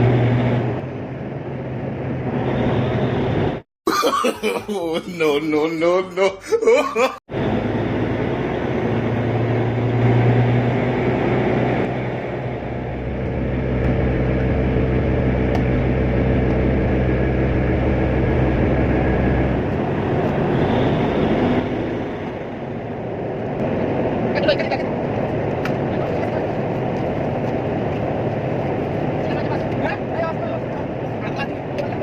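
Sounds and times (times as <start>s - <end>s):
machinery low hum: 7.4s - 24.3s.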